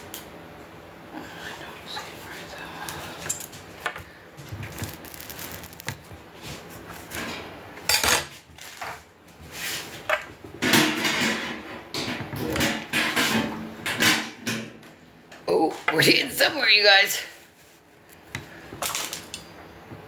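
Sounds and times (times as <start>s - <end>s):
metal grill parts clanking: 10.6s - 14.8s.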